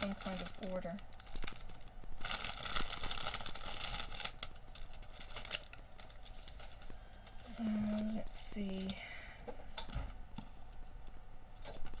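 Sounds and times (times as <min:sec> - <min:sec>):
plastic bags crinkling: 0:00.0 - 0:08.9.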